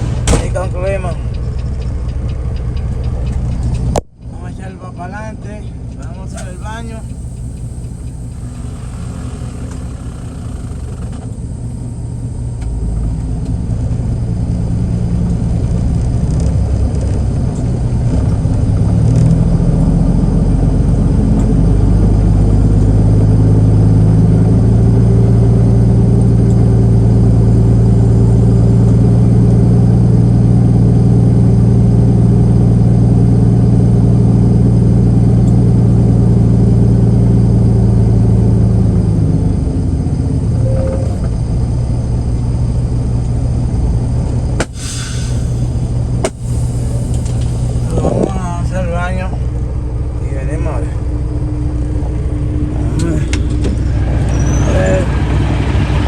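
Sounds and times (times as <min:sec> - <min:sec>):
diesel truck engine pulling away: 0:00.0 - 0:04.6, 0:05.2 - 0:56.0.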